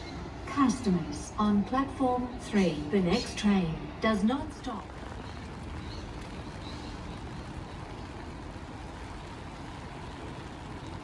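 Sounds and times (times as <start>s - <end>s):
rumble of vehicles: 0.0s - 11.0s
rain hiss: 4.8s - 11.0s.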